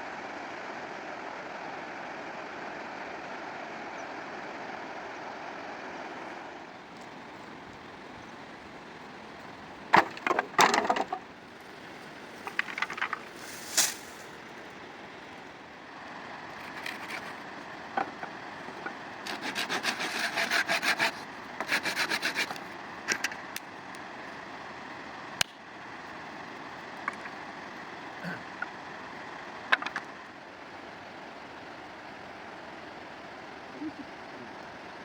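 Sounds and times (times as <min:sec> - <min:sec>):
outdoor background: 0:00.0 - 0:35.0
wood cracking: 0:09.9 - 0:14.4
rasping strokes on wood: 0:16.6 - 0:17.4, 0:19.2 - 0:22.7.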